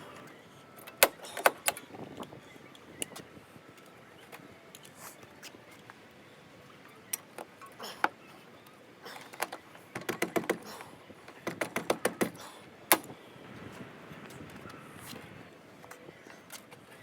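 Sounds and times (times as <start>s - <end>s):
sharp clicks and knocks: 9.4s - 10.7s, 11.4s - 13.1s.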